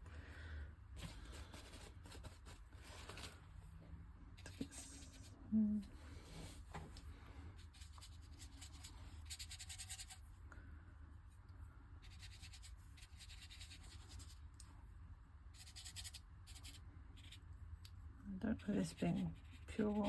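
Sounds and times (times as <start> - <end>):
low steady hum: 0.0 - 20.0
tool scratching on paper: 7.6 - 10.2, 12.0 - 14.4, 15.6 - 17.4, 18.7 - 20.0.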